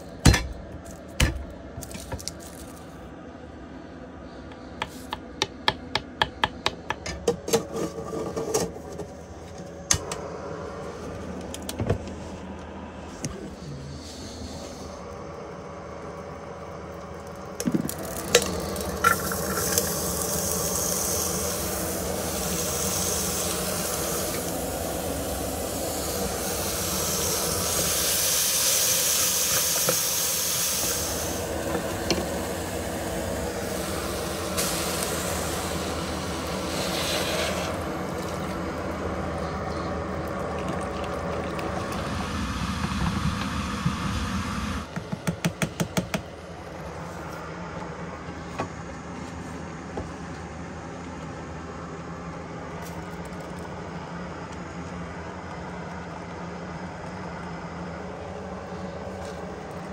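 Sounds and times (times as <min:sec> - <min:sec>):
gas burner hum: 0:00.0 - 0:59.9
rice and vegetables sizzling: 0:17.5 - 0:44.9.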